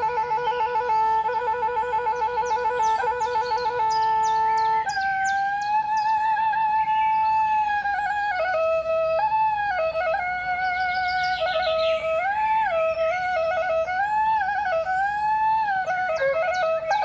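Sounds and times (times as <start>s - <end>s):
high bird-like trill: 0.0s - 1.4s, 2.4s - 8.5s, 10.9s - 15.9s
solo flute melody: 0.0s - 17.0s.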